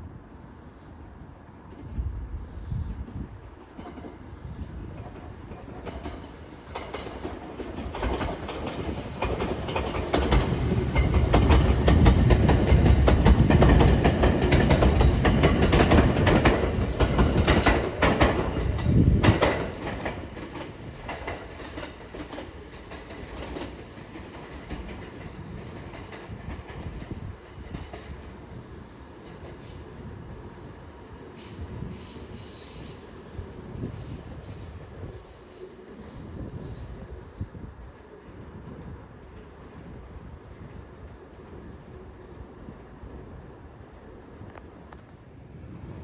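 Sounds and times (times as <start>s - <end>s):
train rumble: 0.0s - 46.0s
wheels clacking over rail joints: 5.1s - 25.2s.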